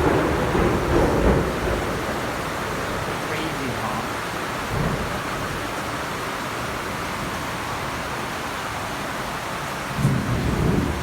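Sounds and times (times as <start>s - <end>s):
low rumble of thunder: 0.0s - 3.3s, 4.2s - 5.8s, 9.9s - 11.0s
heavy rain falling: 0.0s - 11.0s.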